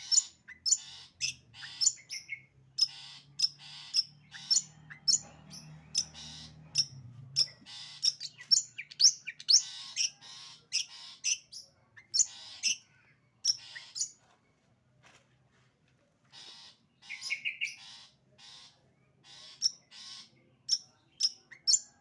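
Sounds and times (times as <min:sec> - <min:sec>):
shrike singing sharp chips: 0:00.0 - 0:12.8.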